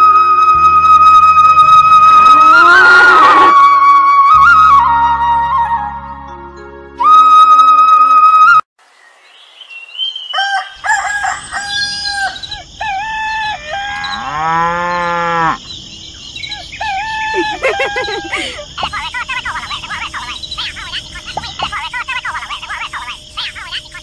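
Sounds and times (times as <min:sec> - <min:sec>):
cow mooing: 0:02.2 - 0:03.5, 0:13.9 - 0:15.6
rooster crowing: 0:10.3 - 0:15.6
chickens clucking: 0:17.4 - 0:22.7.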